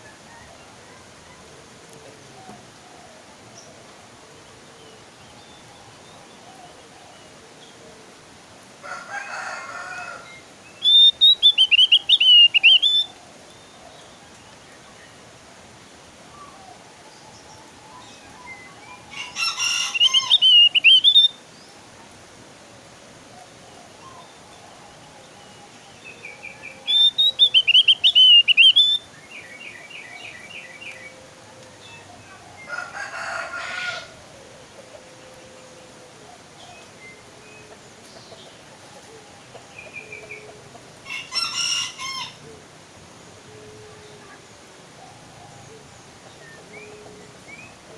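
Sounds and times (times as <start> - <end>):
bird warbling whistles: 10.8 - 13.1, 19.9 - 21.4, 26.8 - 29.0.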